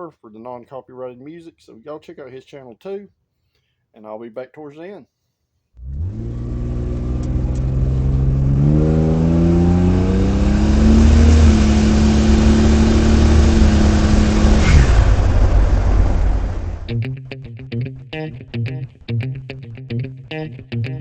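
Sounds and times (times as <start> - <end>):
car engine accelerating: 5.8 - 16.9.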